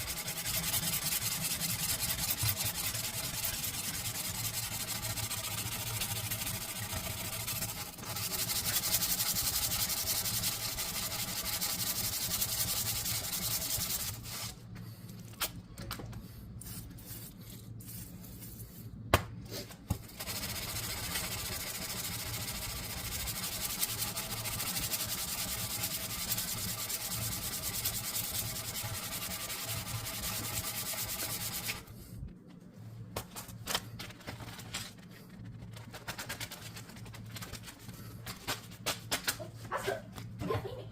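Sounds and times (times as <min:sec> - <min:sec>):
sanding a knife: 0:00.0 - 0:14.6, 0:16.6 - 0:18.9, 0:20.0 - 0:31.9.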